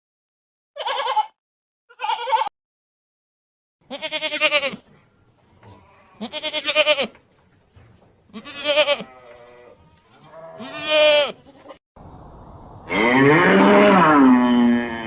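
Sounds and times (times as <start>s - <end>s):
goat bleating: 0.8s - 2.5s, 3.8s - 4.9s, 5.6s - 7.2s, 8.3s - 11.8s, 12.9s - 15.0s.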